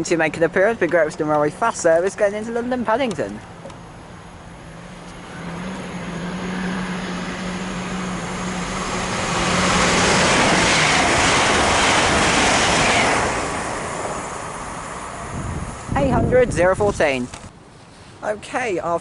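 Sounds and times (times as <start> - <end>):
train passing at speed: 3.5 - 17.4.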